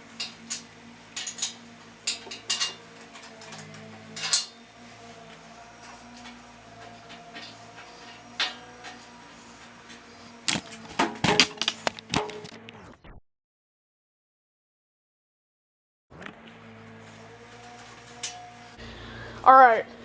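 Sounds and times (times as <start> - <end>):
metal clinks of hand tools: 0.0 - 4.6.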